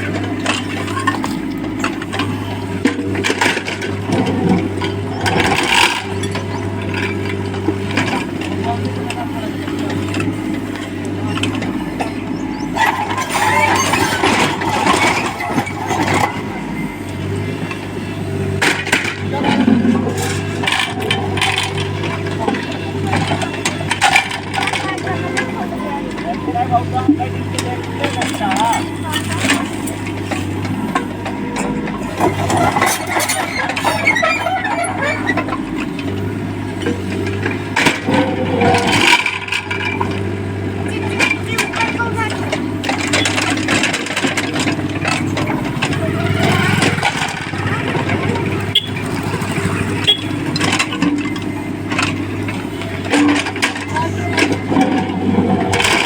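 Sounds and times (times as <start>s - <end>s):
backhoe diesel engine digging: 0.0s - 56.0s
metallic rattles and squeals: 9.8s - 27.0s, 27.7s - 40.2s, 41.2s - 56.0s.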